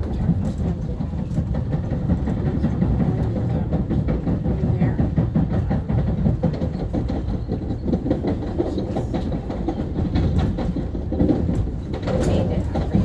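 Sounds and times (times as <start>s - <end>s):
train clicks and clatter: 0.0s - 13.0s
train wheels rumbling on track: 0.0s - 13.0s.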